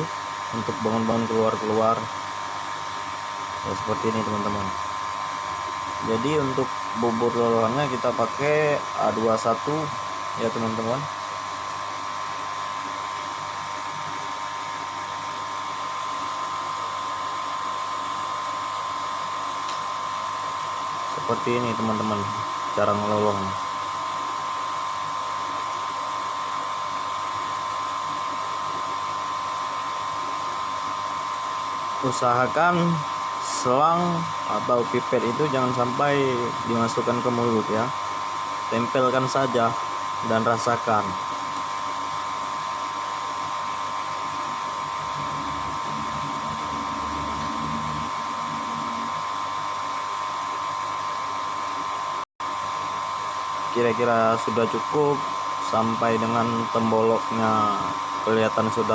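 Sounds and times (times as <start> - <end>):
mechanical whine: 0.0 - 58.9
low hum: 44.9 - 49.4.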